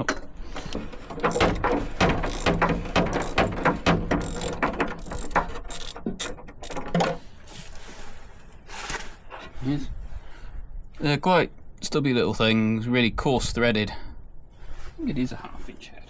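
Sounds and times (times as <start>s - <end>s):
ratchet wrench clicking: 1.1s - 7.0s.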